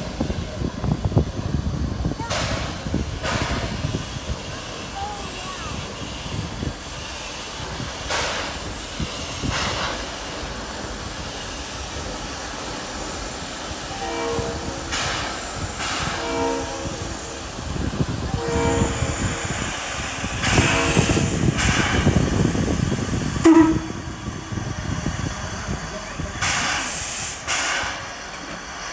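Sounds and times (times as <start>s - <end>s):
passing train rumble: 0.0s - 28.9s
train horn blasts: 13.9s - 22.0s, 23.4s - 24.5s.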